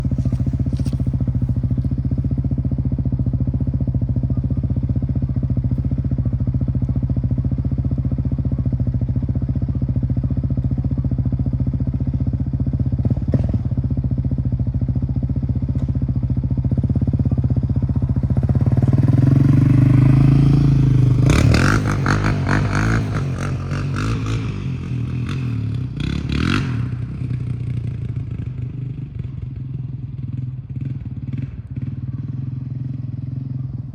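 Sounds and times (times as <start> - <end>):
engine throttle blips: 0.0 - 7.0
engine idling and revving: 0.0 - 33.9.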